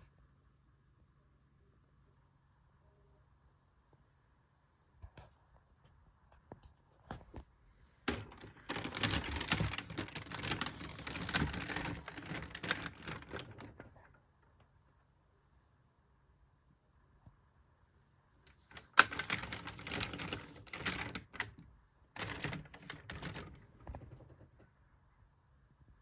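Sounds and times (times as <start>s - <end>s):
plastic toy parts clicking: 8.1s - 13.8s, 18.6s - 21.6s, 22.2s - 23.6s.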